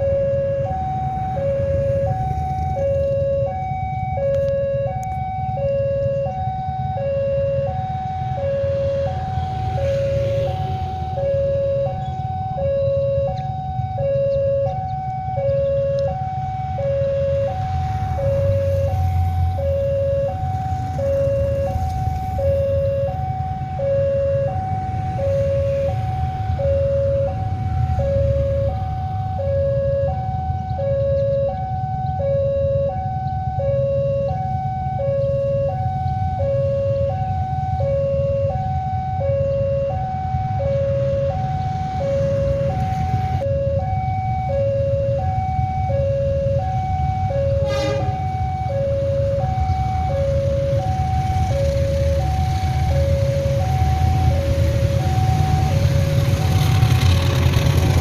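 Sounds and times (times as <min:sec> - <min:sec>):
level crossing alarm two-tone: 0:00.0 - 0:56.3
short sharp horn beep: 0:47.6 - 0:48.4.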